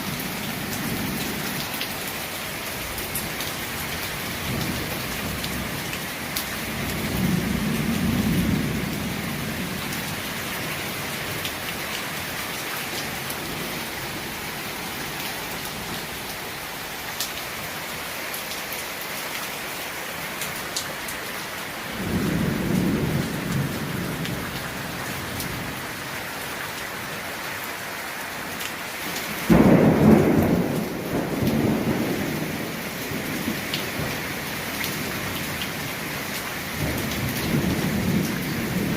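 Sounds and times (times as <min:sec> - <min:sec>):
heavy rain: 0:00.0 - 0:38.9
thunder rumbling: 0:21.9 - 0:25.8, 0:29.5 - 0:34.2.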